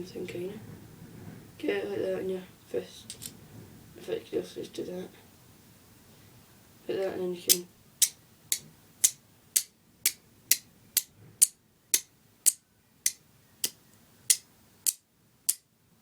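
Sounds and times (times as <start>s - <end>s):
flint striker scraping strikes: 7.5s - 15.6s.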